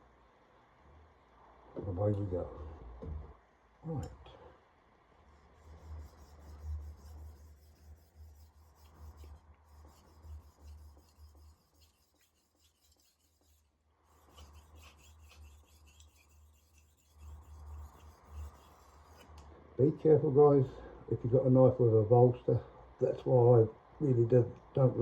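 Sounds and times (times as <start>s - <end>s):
low steady hum: 0.0s - 25.0s
knife scraping on sharpening stone: 10.6s - 13.6s, 14.2s - 19.3s.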